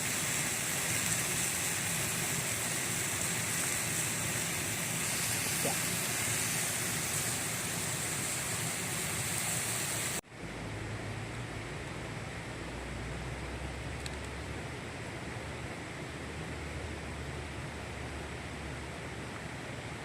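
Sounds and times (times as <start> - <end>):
stream rushing: 0.0 - 10.2.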